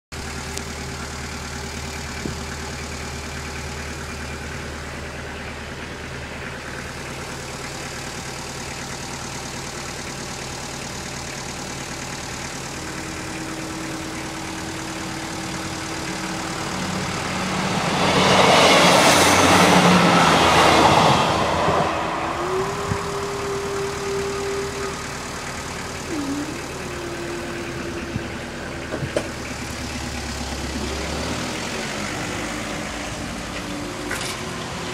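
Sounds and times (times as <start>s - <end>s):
low hum: 12.4s - 30.0s
train wheel and engine noise: 12.8s - 34.9s.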